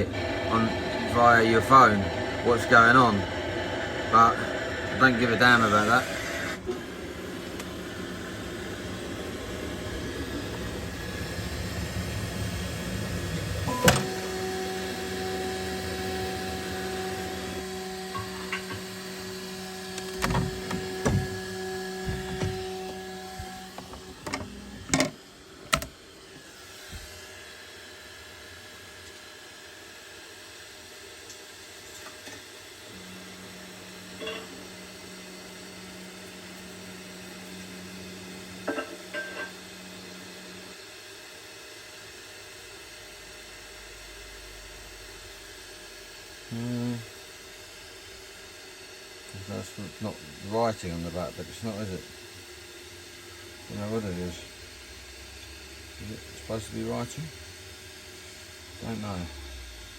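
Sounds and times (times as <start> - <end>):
short low hum: 0.0 - 25.0
fan hiss: 0.0 - 59.9.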